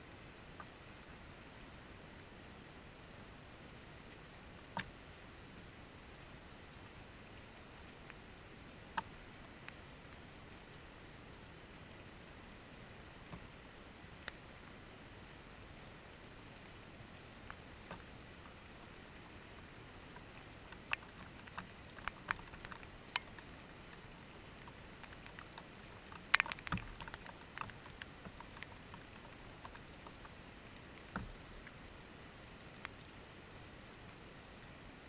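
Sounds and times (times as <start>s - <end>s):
faint steady rain hiss: 0.0s - 35.0s
raindrops ticking on window: 17.2s - 33.1s.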